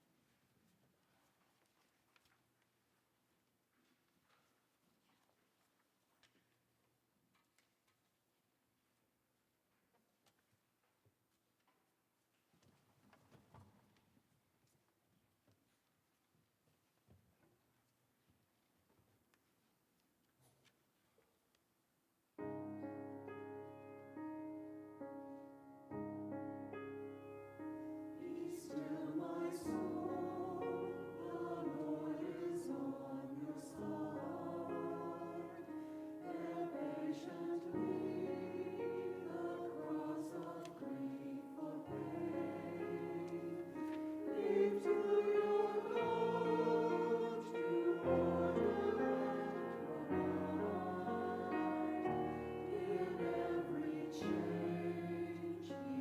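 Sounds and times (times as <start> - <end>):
group singing: 28.2 - 56.0.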